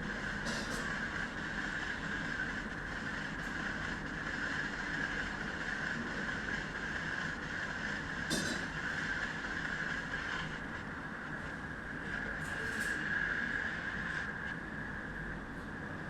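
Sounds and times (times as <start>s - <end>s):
train running at speed: 0.0s - 16.0s.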